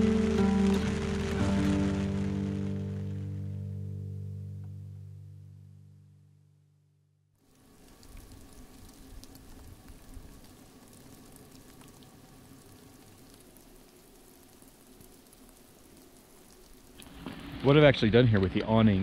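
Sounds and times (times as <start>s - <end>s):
rain falling on pine boughs: 0.0s - 3.7s, 7.4s - 19.0s.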